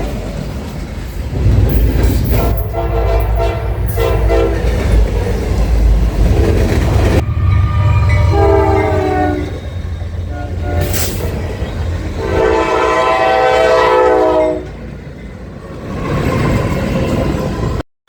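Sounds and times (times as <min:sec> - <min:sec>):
train rumble: 0:00.0 - 0:17.8
locomotive air horn: 0:02.4 - 0:05.0, 0:06.3 - 0:14.8.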